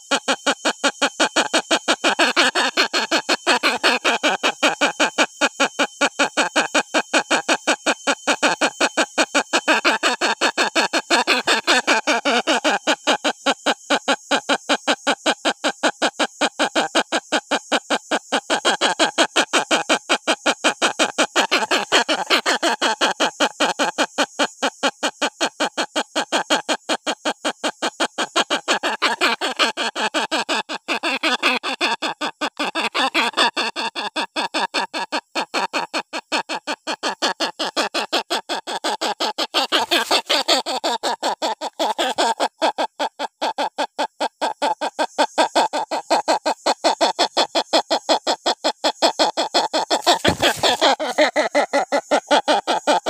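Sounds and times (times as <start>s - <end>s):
hornbill calling: 10.8s - 13.0s, 38.8s - 42.5s, 49.2s - 53.0s.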